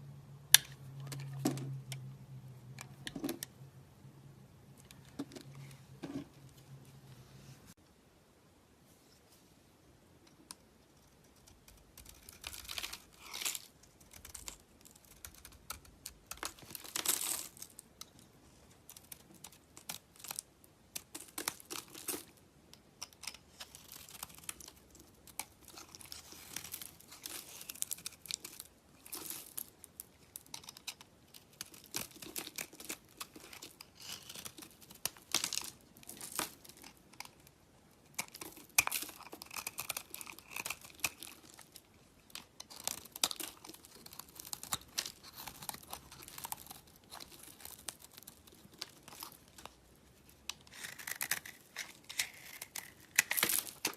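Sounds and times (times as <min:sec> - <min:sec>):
bar soap crunching and crackling: 0:11.2 - 0:53.9.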